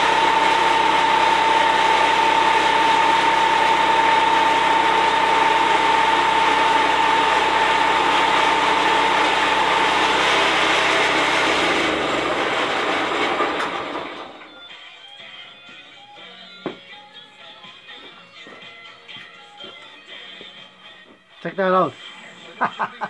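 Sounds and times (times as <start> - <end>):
high steady whine: 0.0 - 14.4
band sawmill running: 0.0 - 14.6
engine winding down: 0.0 - 14.7.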